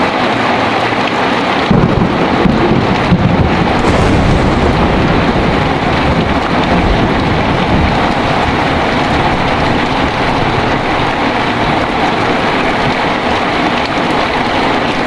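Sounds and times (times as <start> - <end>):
heavy rain pouring: 0.0 - 15.0
thunder rumble: 1.6 - 15.0.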